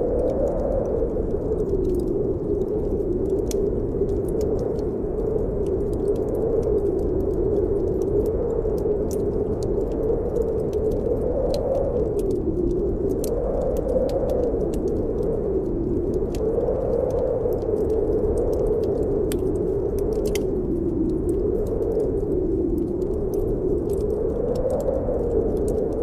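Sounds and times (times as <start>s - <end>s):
blizzard wind howling: 0.0s - 26.0s
wood fire crackling: 0.0s - 26.0s.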